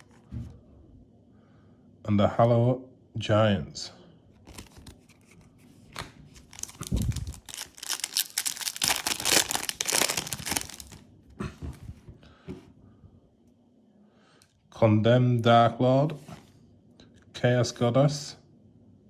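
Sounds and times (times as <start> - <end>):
foil wrapper tearing and crinkling: 4.5 - 5.0, 6.3 - 11.0.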